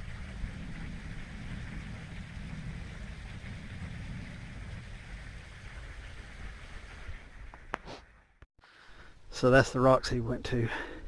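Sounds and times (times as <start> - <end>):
wind buffeting microphone: 0.0 - 7.9
steady outdoor hiss: 0.0 - 11.0.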